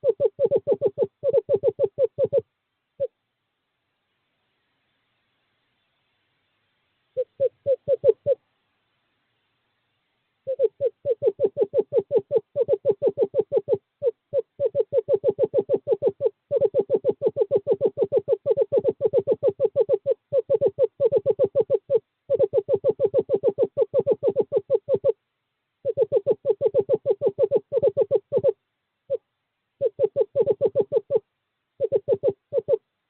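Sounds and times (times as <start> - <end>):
owl trilling: 0.0 - 3.1, 7.2 - 8.4, 10.4 - 25.2, 25.8 - 29.2, 29.8 - 32.8.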